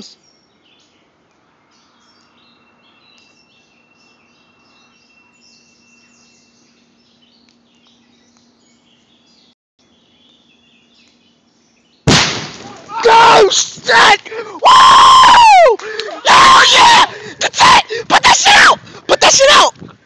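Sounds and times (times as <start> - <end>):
faint birds chirping: 0.0 - 12.1
faint steady hum: 0.1 - 12.9.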